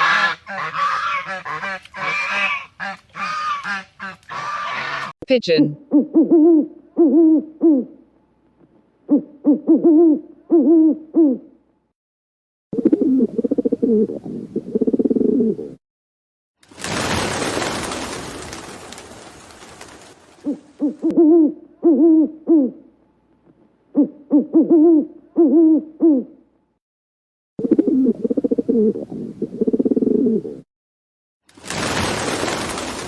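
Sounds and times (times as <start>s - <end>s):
pigeons cooing: 5.9s - 8.0s, 9.1s - 11.5s, 12.8s - 15.8s, 20.4s - 22.9s, 24.0s - 26.4s, 27.6s - 30.6s.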